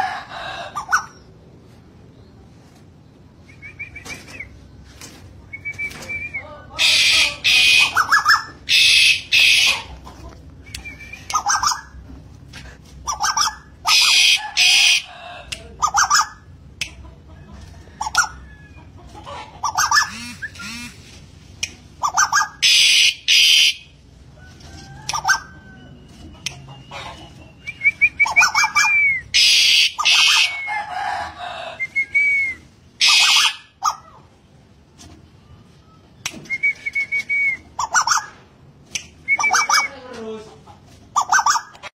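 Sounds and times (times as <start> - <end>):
curved bird whistles: 39.2 - 40.0.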